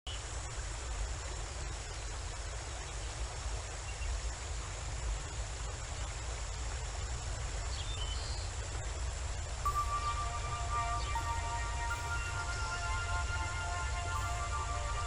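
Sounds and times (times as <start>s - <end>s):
waterfall rushing: 9.7s - 15.0s.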